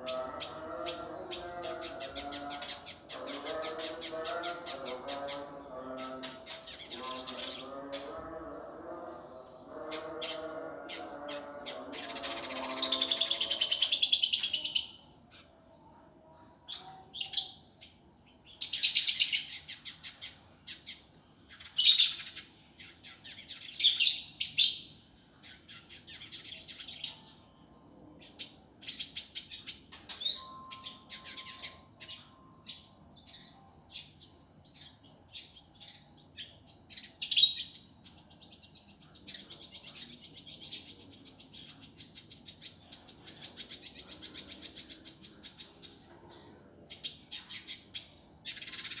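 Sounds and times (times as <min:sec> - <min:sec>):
bird singing rapid high chips: 0:11.8 - 0:15.1, 0:39.6 - 0:49.0.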